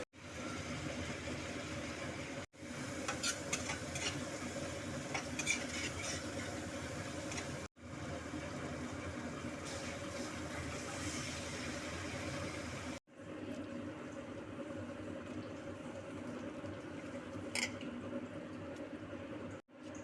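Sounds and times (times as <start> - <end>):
food frying in oil: 0.0 - 20.0
spatula scraping a pan: 3.0 - 4.3, 5.1 - 6.6.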